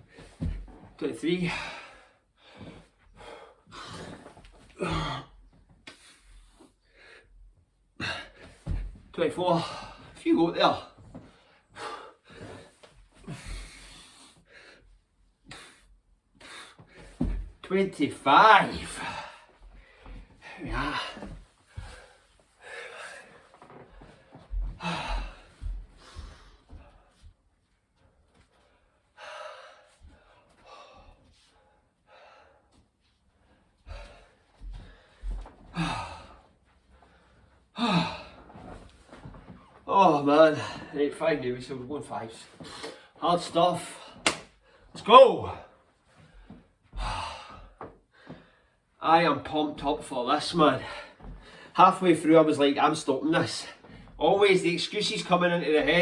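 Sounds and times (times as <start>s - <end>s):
man breathing hard: 1.4s - 9.0s, 11.3s - 17.5s, 18.8s - 27.4s, 28.6s - 38.9s, 46.2s - 48.9s
man sighing: 4.8s - 5.4s, 35.7s - 36.4s, 37.8s - 38.5s.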